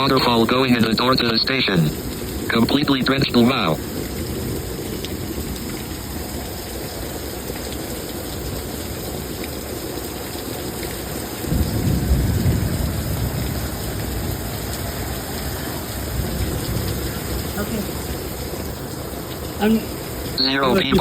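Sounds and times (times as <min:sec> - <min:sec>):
heavy rain pouring: 0:00.0 - 0:21.0
low rumble of thunder: 0:03.8 - 0:09.8, 0:10.6 - 0:20.4.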